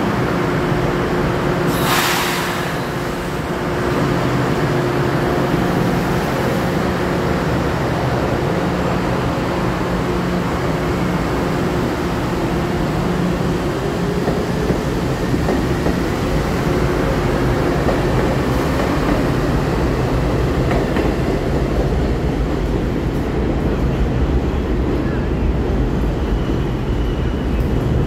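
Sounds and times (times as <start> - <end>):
air hiss: 1.7 - 3.2.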